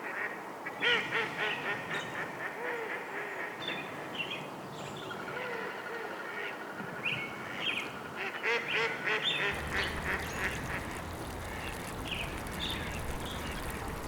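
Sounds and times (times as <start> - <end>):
birds calling: 9.5 - 14.0
steady background noise: 9.5 - 14.0
low rumble: 9.6 - 14.0.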